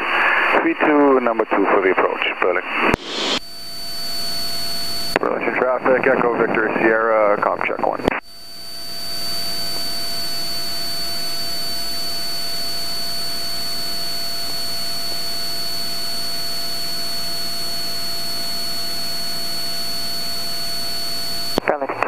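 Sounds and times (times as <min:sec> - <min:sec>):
airplane engine and propeller drone: 0:00.0 - 0:03.8, 0:04.8 - 0:22.0
high-pitched whine: 0:01.5 - 0:21.9
airflow: 0:02.8 - 0:03.4.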